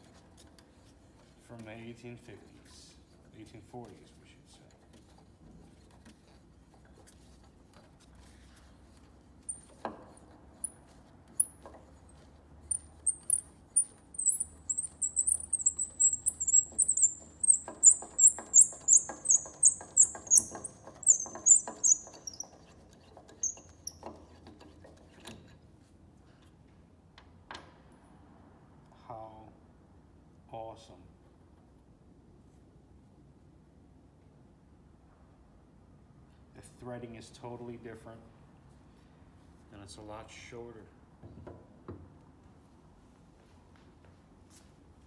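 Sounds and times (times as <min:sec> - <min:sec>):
tuning pin squeaking: 0:09.5 - 0:11.7, 0:12.6 - 0:24.2.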